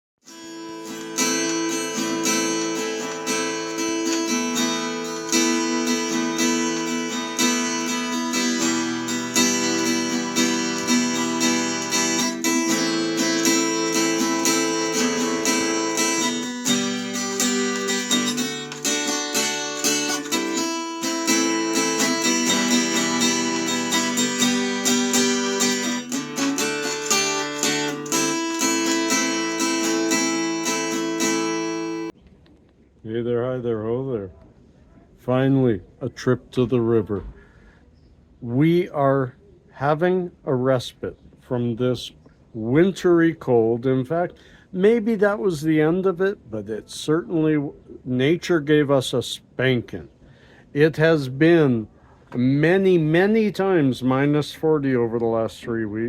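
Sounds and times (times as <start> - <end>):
acoustic guitar strumming chords: 0.2 - 32.2.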